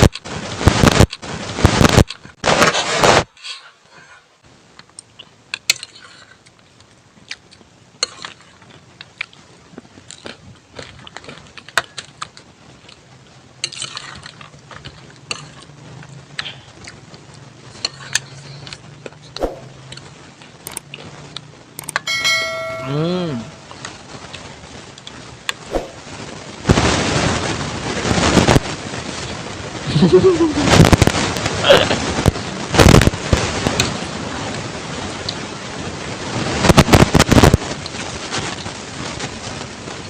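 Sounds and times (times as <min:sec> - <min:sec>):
low steady hum: 0:04.5 - 0:26.6
utensils clicking and tapping: 0:21.8 - 0:23.0
short wavering tone: 0:22.1 - 0:23.8.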